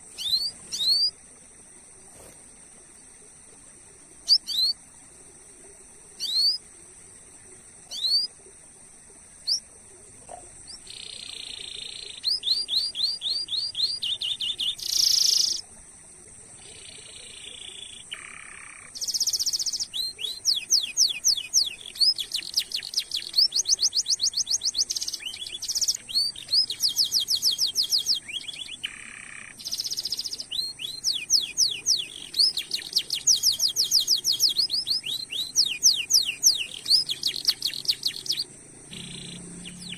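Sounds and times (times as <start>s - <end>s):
canary singing: 0.0s - 1.1s, 10.6s - 15.6s, 16.7s - 39.9s
faint high whine: 0.0s - 39.9s.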